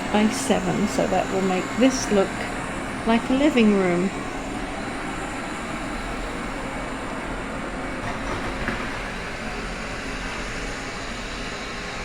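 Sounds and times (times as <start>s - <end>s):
robot vacuum motor and brush whir: 0.0s - 12.0s.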